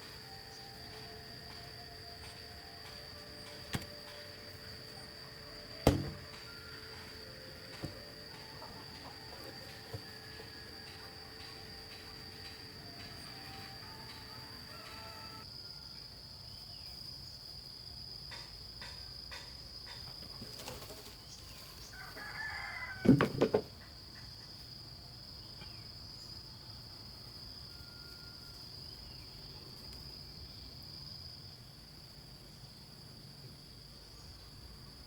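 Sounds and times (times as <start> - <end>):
high drone of insects: 0.0 - 35.0
loud quick thumps: 5.8 - 6.4
rooster crowing: 13.0 - 16.1, 21.8 - 23.3.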